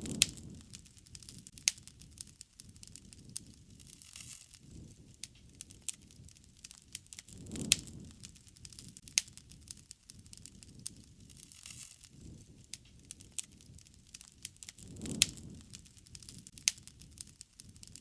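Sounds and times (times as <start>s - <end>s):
low rushing of flames: 0.0s - 18.0s
wood fire popping and snapping: 0.0s - 18.0s.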